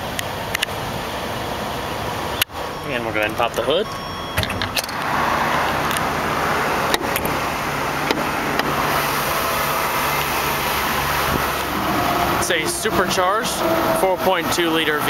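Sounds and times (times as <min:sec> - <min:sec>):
car engine idling: 0:00.0 - 0:15.0
hood latch clicks and knocks: 0:08.0 - 0:08.7.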